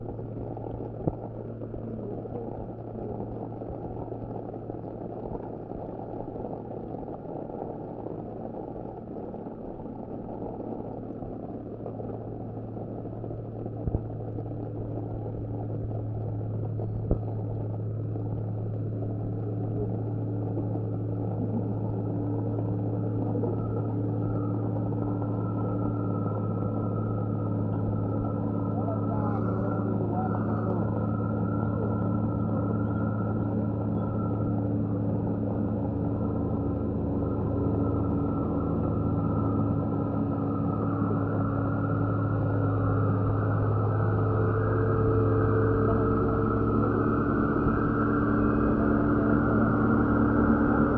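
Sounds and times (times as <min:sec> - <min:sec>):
diesel truck engine under load: 0:16.6 - 0:50.9.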